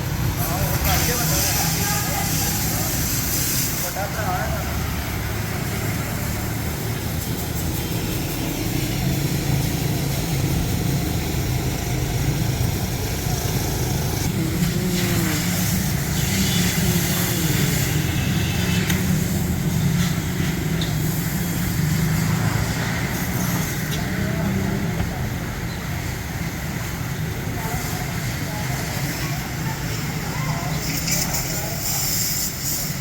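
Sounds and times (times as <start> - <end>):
hiss: 0.0 - 24.0, 26.6 - 33.0
low mechanical drone: 8.7 - 23.1.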